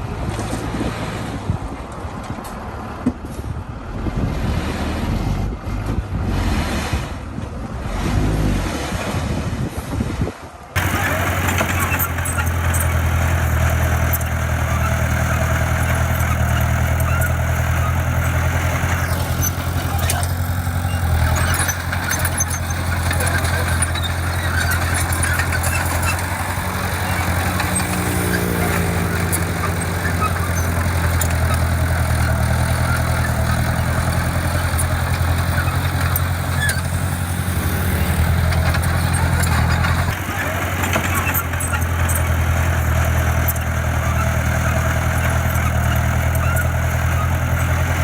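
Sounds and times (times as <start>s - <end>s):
diesel engine running: 10.7s - 48.0s.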